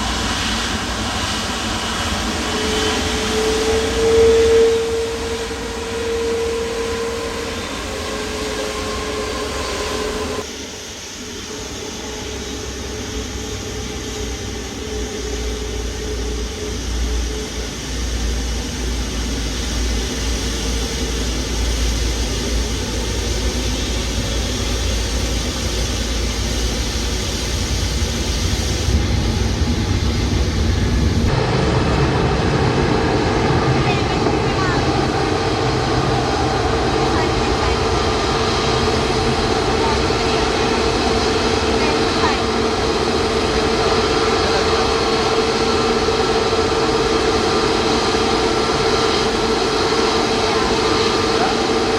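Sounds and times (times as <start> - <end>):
deep rumble: 0.0 - 10.5, 11.4 - 51.9
jet engine whine: 0.0 - 51.9.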